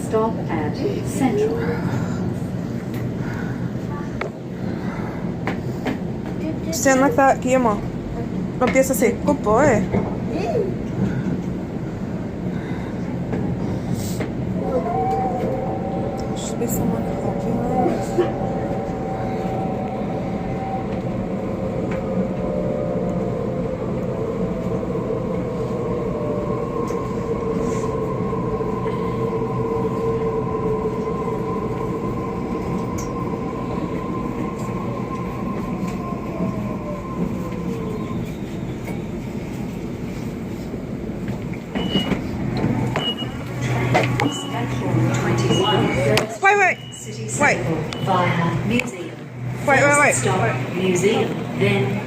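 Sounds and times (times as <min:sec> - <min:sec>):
electric train rumble: 0:00.0 - 0:52.0
train motor whine: 0:41.3 - 0:52.0.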